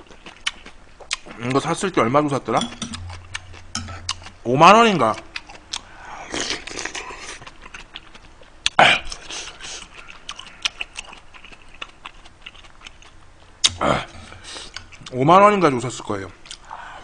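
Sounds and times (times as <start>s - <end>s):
person chewing food: 0.0s - 1.6s, 2.8s - 4.5s, 5.2s - 15.2s, 16.4s - 16.7s.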